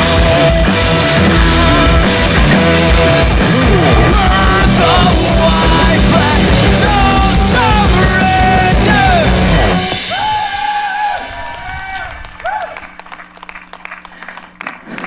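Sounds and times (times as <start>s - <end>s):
live rock band playing: 0.0s - 10.6s
crowd cheering: 0.0s - 15.0s.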